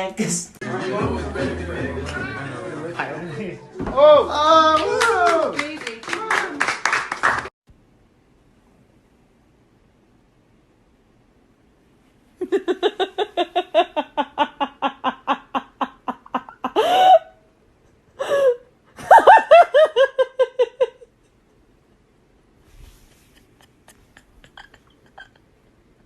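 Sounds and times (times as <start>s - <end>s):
person laughing hard: 12.4s - 17.4s, 18.2s - 21.1s, 23.3s - 25.4s.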